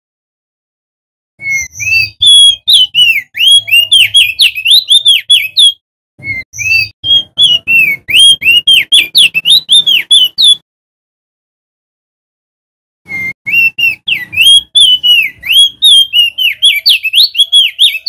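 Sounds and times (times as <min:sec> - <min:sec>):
bird singing whistled notes: 0:01.4 - 0:10.6, 0:13.1 - 0:18.0.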